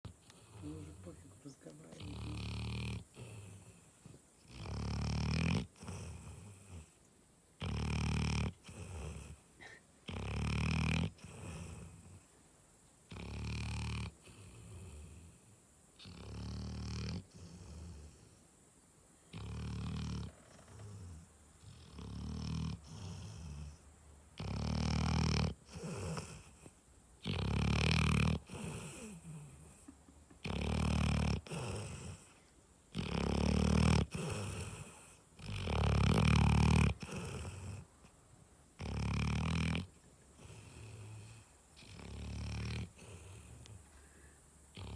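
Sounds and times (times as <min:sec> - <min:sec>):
dog breathing quietly: 0:00.0 - 0:04.8, 0:31.2 - 0:38.2, 0:40.3 - 0:44.9
dog snoring: 0:00.0 - 0:07.0, 0:07.6 - 0:12.3, 0:13.1 - 0:18.4, 0:19.3 - 0:38.1, 0:38.8 - 0:43.9.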